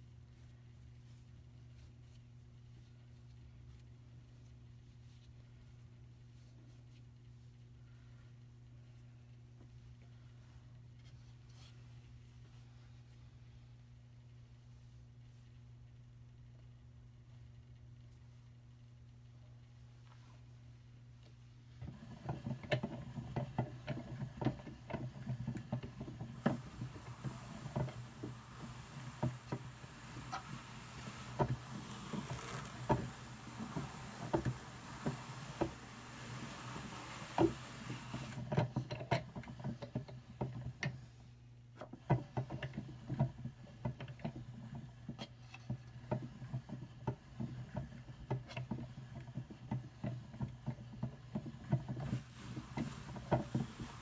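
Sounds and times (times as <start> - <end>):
wool brushing with soft hiss: 0.0 - 17.4, 18.0 - 41.5, 44.3 - 54.0
drum carder clicking: 21.9 - 40.7.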